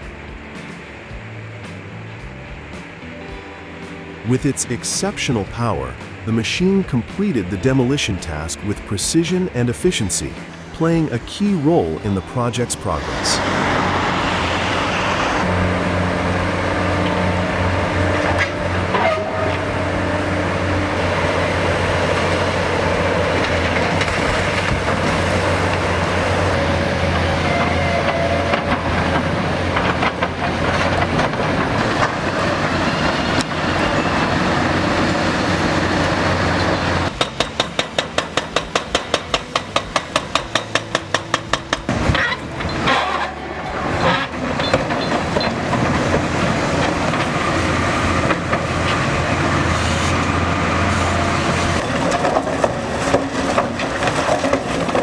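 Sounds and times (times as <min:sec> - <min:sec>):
heavy machine engine humming: 0:00.0 - 0:55.0.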